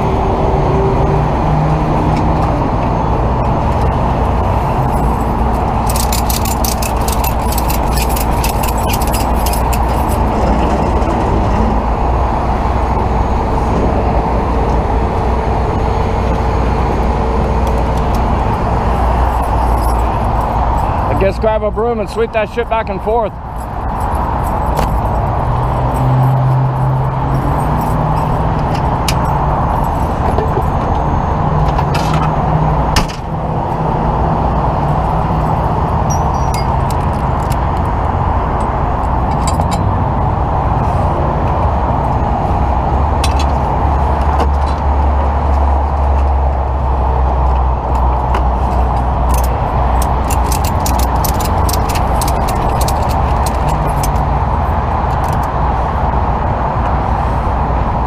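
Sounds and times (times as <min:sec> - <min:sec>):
road noise: 0:00.0 - 0:58.0
vehicle engine running: 0:00.0 - 0:58.0
glass clinking: 0:36.1 - 0:36.9.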